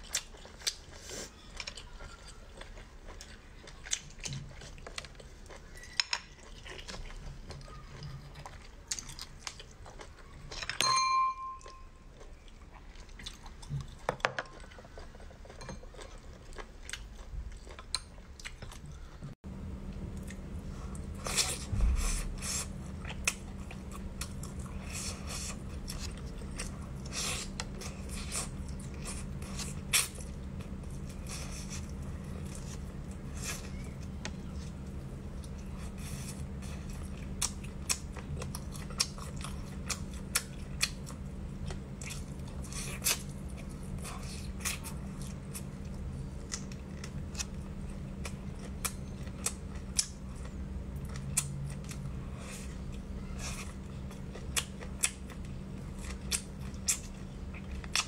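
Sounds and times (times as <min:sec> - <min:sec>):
steady low hum: 0:00.0 - 0:58.0
chewing meat with wet mouth clicks: 0:25.7 - 0:52.2, 0:53.6 - 0:58.0.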